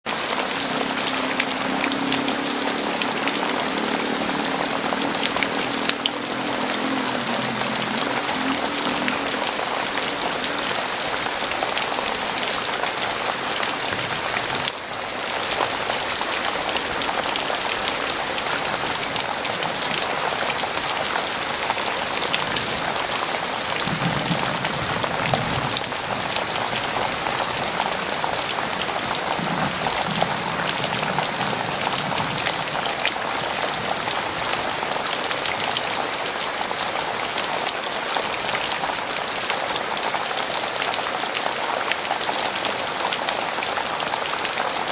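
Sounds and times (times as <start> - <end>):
heavy rain falling: 0.0 - 44.9.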